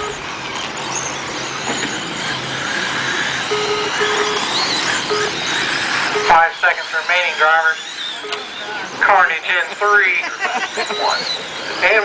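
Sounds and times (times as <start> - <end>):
short electronic beeps: 0.0 - 0.2, 3.5 - 8.9, 10.7 - 12.0
race car engines: 0.0 - 12.0.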